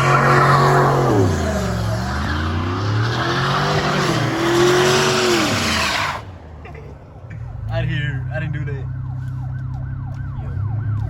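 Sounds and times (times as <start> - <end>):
car engine revving: 0.0 - 6.5
tires squealing: 0.0 - 6.5.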